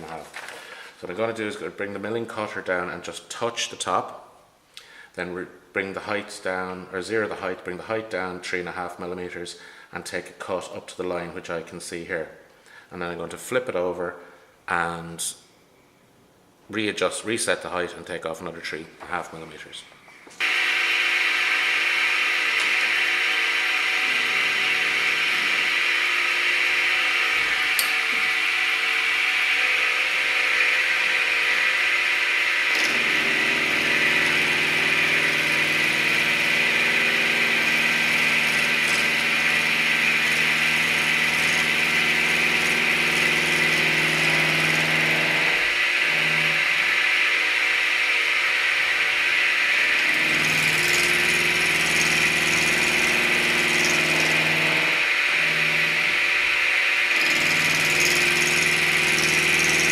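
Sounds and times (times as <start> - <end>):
high whine: 20.4 - 59.6
milling machine cutting metal: 20.4 - 59.9.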